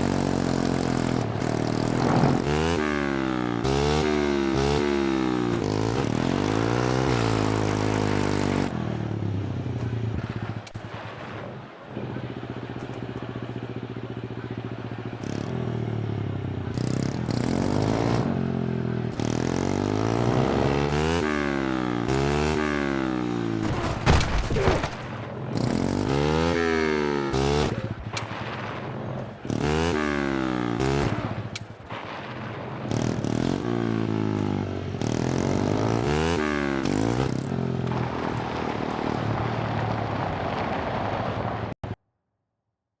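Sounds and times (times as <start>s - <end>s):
small engine revving: 0.0s - 8.7s, 19.1s - 24.0s.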